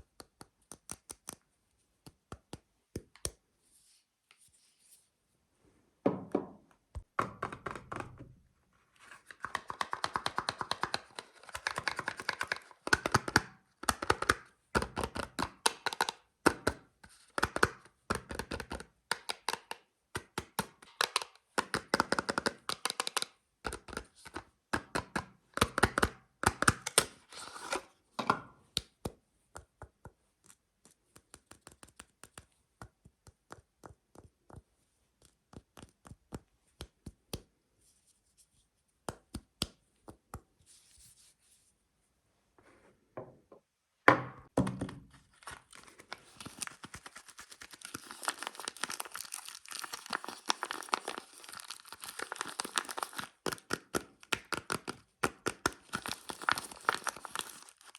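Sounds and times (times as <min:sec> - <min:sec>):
taps and packaging crinkles: 0:44.7 - 0:57.9.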